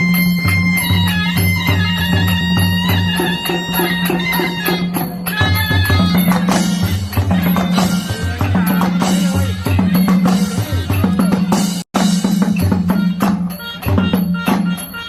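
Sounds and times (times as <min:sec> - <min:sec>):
fast drum pattern: 0:00.0 - 0:15.0
reedy wind instrument: 0:00.0 - 0:15.0.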